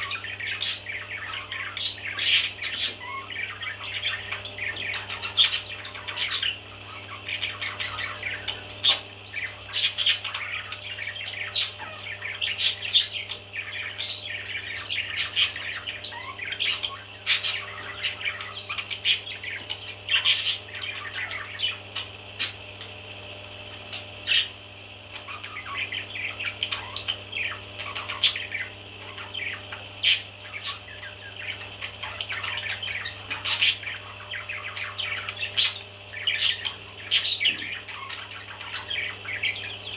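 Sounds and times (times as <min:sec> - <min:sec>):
baby parrots chirping: 0:00.0 - 0:22.9, 0:23.7 - 0:39.9
steady low hum: 0:00.0 - 0:39.9.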